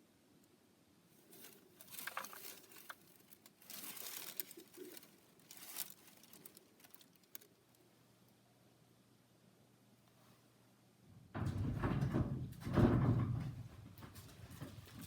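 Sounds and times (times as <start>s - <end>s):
crinkling handling noises: 1.1s - 7.9s.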